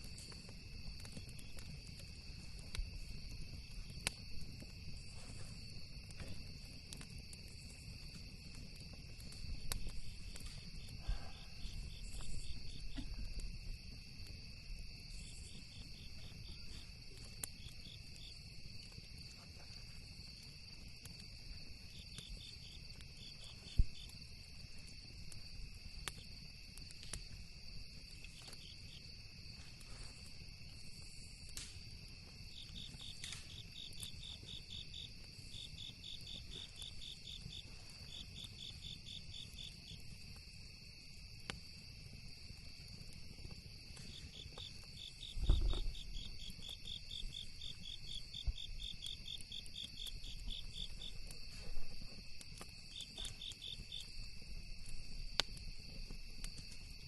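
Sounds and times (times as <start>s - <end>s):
campfire crackling and popping: 0.0s - 57.0s
crickets and insects trilling: 0.0s - 57.0s
rapid pulsed insect chirps: 9.1s - 18.7s, 32.4s - 57.0s
low thump: 45.4s - 46.0s.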